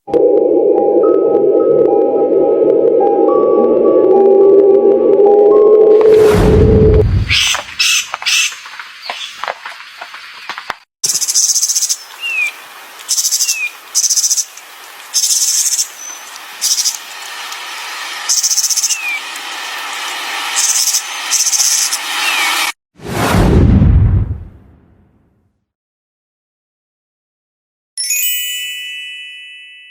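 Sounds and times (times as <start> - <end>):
songbird buzzy trills: 7.3 - 22.5.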